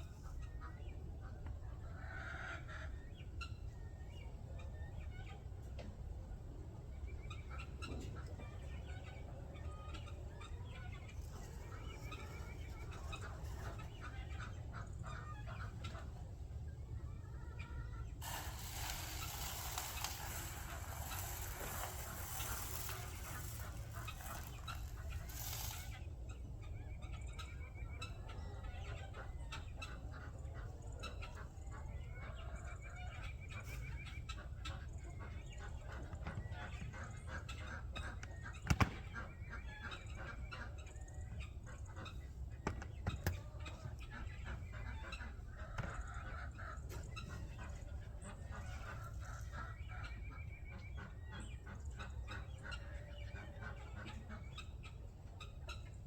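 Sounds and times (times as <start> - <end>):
chickens clucking: 0.1 - 56.0
poultry calling: 17.3 - 33.6.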